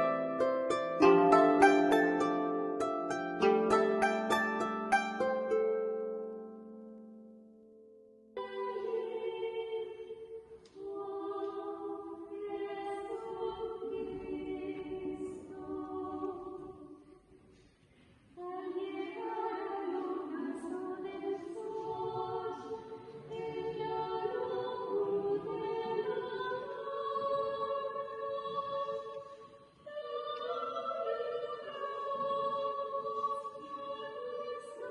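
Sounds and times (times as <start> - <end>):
choir singing slow held chords: 8.3 - 17.5, 18.4 - 34.9.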